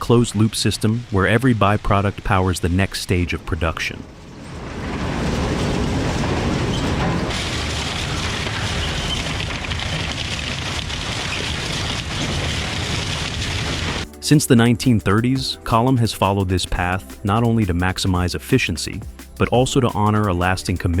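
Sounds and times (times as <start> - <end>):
industrial machine noise: 0.0 - 14.2.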